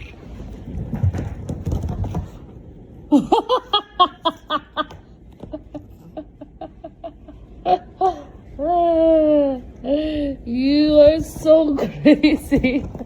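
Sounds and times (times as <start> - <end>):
person laughing: 3.1 - 9.0, 11.8 - 13.0.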